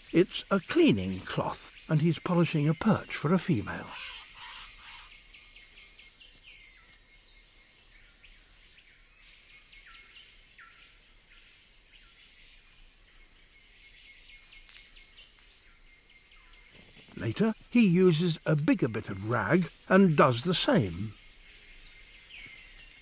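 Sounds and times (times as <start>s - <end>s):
bird calling with falling notes: 0.0s - 5.3s.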